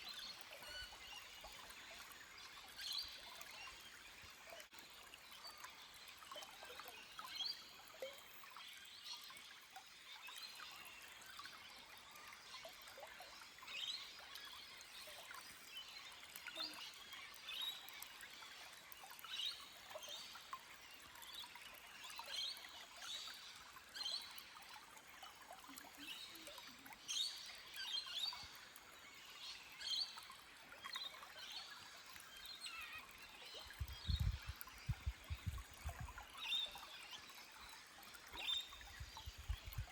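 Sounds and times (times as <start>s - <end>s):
stream trickling over rocks: 0.0s - 39.9s
small birds chirping: 25.6s - 39.9s.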